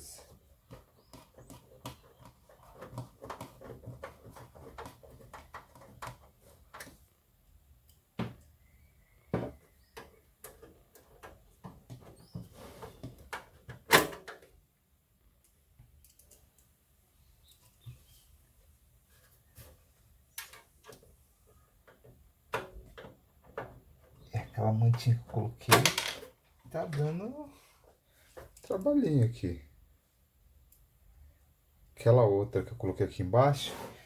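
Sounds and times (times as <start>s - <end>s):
hands handling cables clicking: 15.4s - 16.7s.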